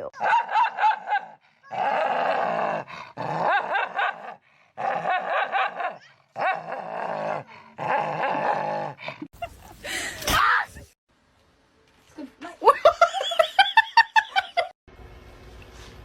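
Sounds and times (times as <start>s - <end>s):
dog growling: 6.4s - 9.2s.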